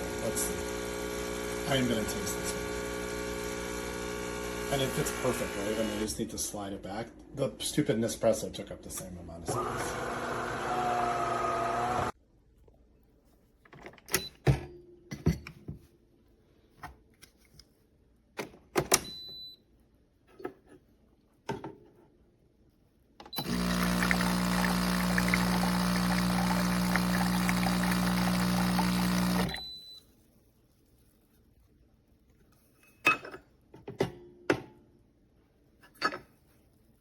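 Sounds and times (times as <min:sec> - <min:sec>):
coffee grinder grinding beans: 0:00.0 - 0:06.1, 0:09.6 - 0:12.1, 0:23.4 - 0:29.6.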